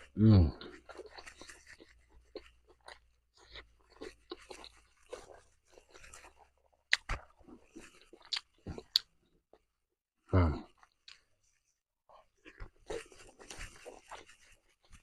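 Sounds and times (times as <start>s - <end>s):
crunchy chewing: 0.0s - 9.1s, 12.1s - 15.0s.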